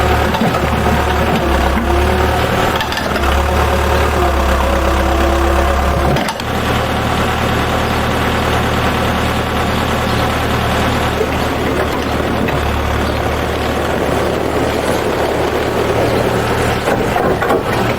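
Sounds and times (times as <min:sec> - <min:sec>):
engine idling: 0:00.0 - 0:17.9.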